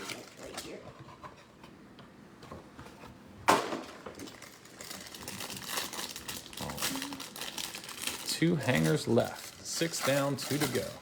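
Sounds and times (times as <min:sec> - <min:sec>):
packaging crinkling and rustling: 0:04.1 - 0:11.0.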